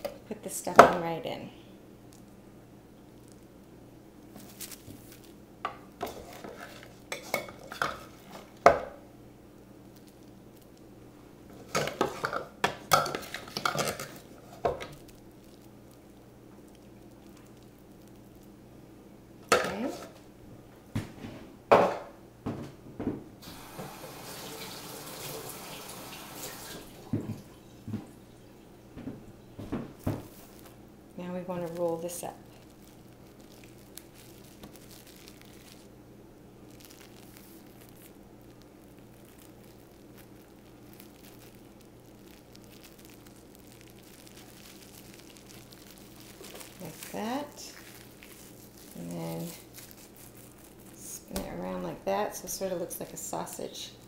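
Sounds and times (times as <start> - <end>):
steady low hum: 0.0 - 23.4, 27.6 - 54.0
plastic wrap crinkling: 2.0 - 18.7, 19.4 - 20.3, 29.6 - 54.0
kitchen tap running: 23.4 - 27.6.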